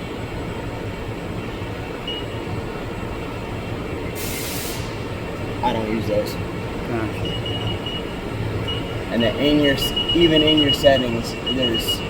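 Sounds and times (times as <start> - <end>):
air hiss: 4.2 - 5.1.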